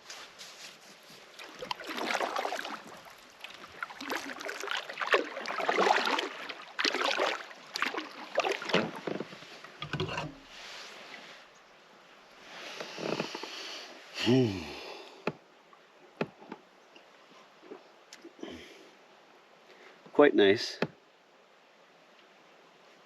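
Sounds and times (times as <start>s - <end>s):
paddle splashing in water: 0.4s - 11.4s.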